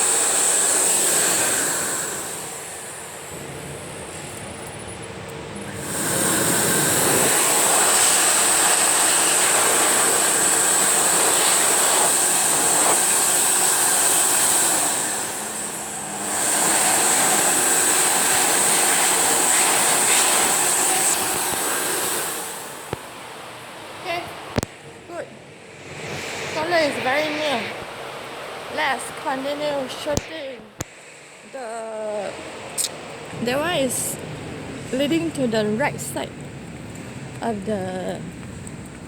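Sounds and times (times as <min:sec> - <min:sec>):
electric hand dryer blowing: 0:00.0 - 0:23.4, 0:24.1 - 0:30.9.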